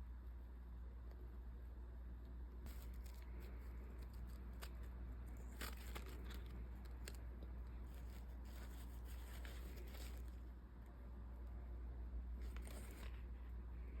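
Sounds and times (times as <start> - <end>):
steady low hum: 0.0 - 14.0
packaging snipping and crinkling: 2.7 - 10.4, 12.4 - 13.2.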